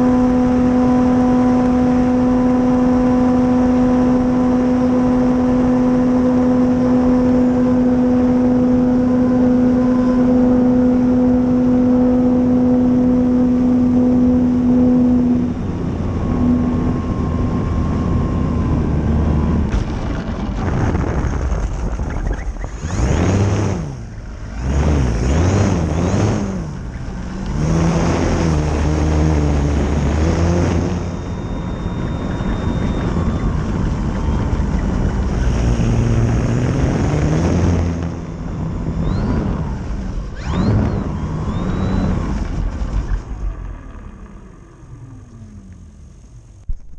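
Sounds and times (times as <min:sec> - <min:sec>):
electric motor and propeller whine: 0:00.0 - 0:46.9.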